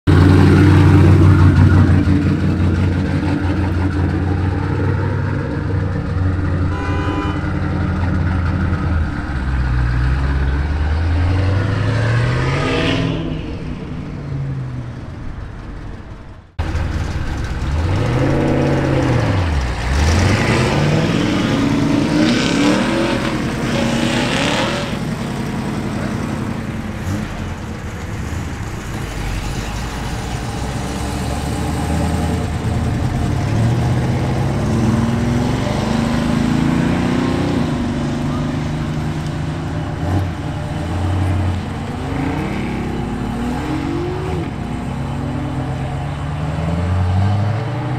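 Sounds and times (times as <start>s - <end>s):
car engine idling and revving: 0.0s - 47.9s.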